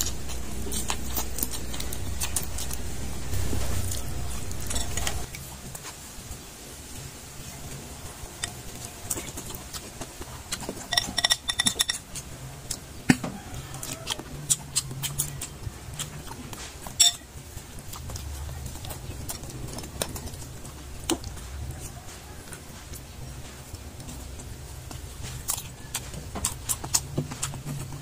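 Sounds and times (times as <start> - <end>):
chewing and lip-smacking: 0.0 - 5.9, 8.0 - 28.0
steady low hum: 0.0 - 13.6.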